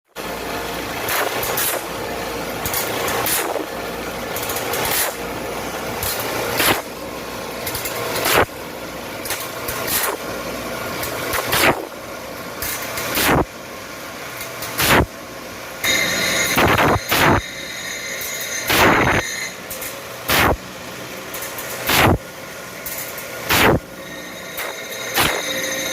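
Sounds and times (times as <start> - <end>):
saw blade sharpening machine grinding: 0.2 - 13.4, 15.8 - 25.9
sharp grinding stroke: 2.6 - 3.7, 4.4 - 5.3, 6.0 - 6.9, 9.7 - 10.2, 15.8 - 20.6, 22.9 - 25.9.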